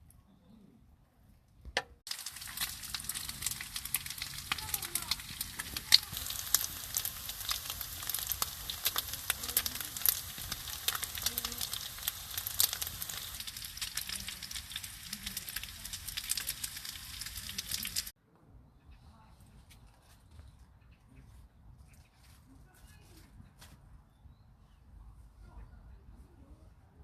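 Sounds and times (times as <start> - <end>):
food sizzling in a pan: 2.1 - 18.1.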